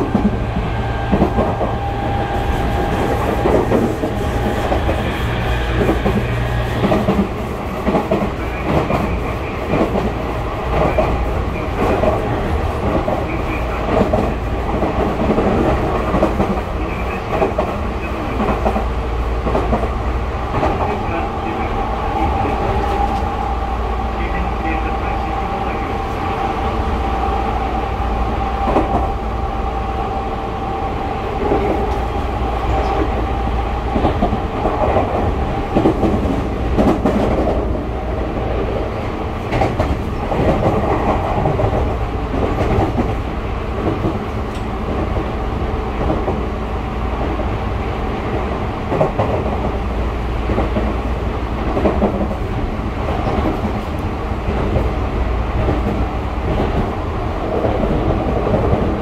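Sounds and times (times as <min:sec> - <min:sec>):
train wheels rumbling on rail: 0:00.0 - 0:59.0
clacks over rail joints: 0:06.8 - 0:13.3, 0:33.9 - 0:37.8, 0:39.4 - 0:43.2.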